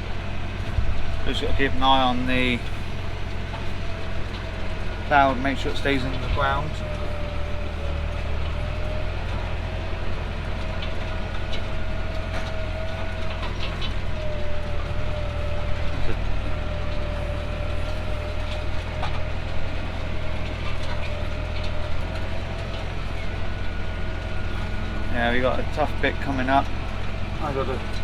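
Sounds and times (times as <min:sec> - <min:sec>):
steady whine: 0:00.0 - 0:28.0
tractor engine droning: 0:00.0 - 0:28.0.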